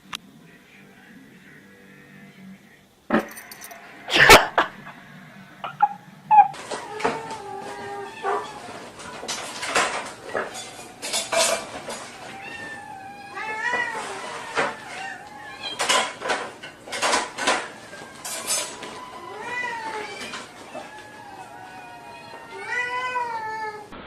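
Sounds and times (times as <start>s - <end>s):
cat meowing: 5.7s - 9.3s, 12.0s - 16.2s, 17.6s - 24.0s.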